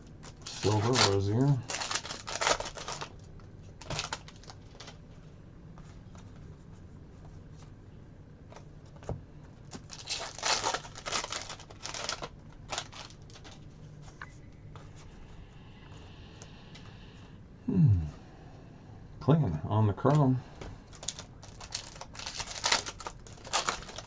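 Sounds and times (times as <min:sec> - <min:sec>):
cards being handled: 0:00.2 - 0:05.0, 0:08.5 - 0:15.1, 0:20.9 - 0:24.0
foil wrapper crinkling and tearing: 0:00.2 - 0:05.0, 0:09.7 - 0:13.6, 0:20.9 - 0:24.0.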